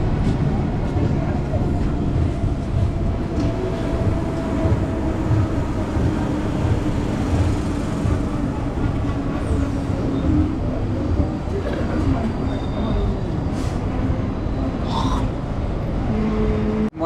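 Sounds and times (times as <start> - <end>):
low pulsing: 0.0 - 13.4
train wheels rumbling on track: 0.0 - 17.0.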